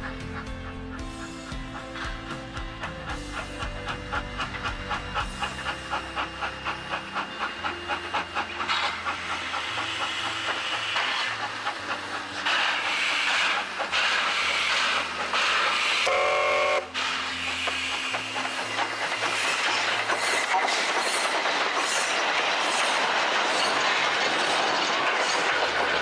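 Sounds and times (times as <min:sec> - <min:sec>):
steam hissing: 0:00.0 - 0:26.0
steam locomotive chuffing: 0:00.0 - 0:26.0
steam whistle blast: 0:07.2 - 0:18.0.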